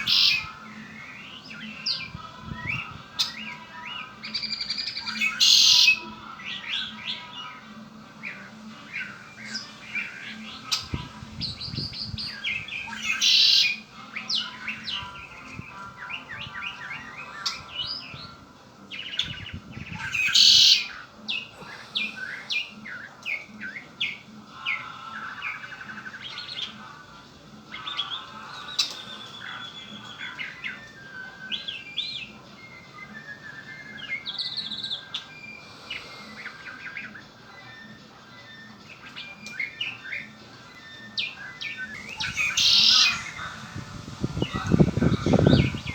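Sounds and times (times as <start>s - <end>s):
blackbird chirping and singing: 0.0s - 45.9s.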